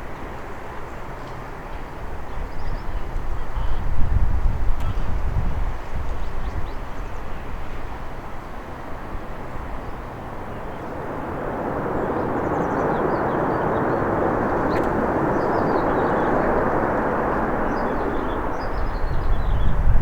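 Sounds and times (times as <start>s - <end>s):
jet engine roar: 7.1s - 20.0s.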